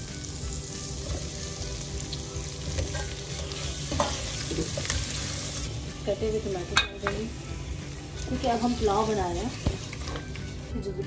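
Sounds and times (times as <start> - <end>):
masala sizzling in oil: 0.0 - 10.7
potatoes being stirred: 6.9 - 10.6.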